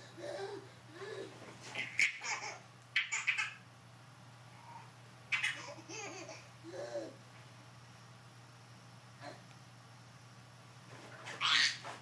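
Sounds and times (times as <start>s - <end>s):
baby laughing: 0.2s - 3.6s, 5.3s - 7.2s.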